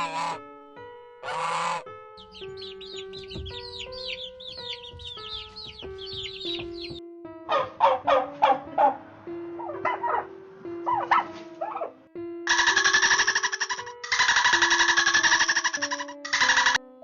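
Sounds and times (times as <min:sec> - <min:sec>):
chicks peeping: 0:01.2 - 0:08.9, 0:12.5 - 0:16.8
dog barking: 0:07.5 - 0:09.0, 0:09.6 - 0:10.3, 0:10.9 - 0:12.6.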